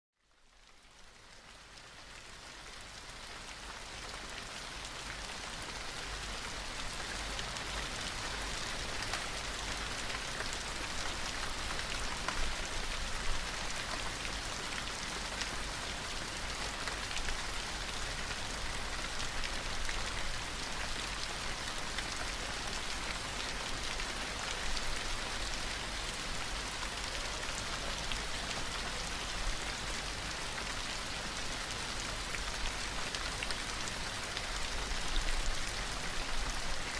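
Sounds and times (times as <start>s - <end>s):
steady rain hiss: 0.2s - 36.9s.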